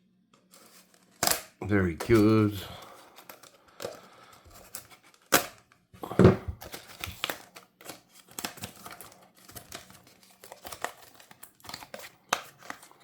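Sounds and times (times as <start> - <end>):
cardboard crackling and tearing: 6.6 - 13.0.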